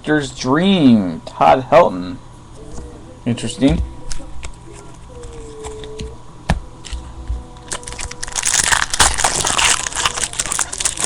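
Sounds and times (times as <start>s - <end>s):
wrapper crinkling: 7.6s - 11.0s.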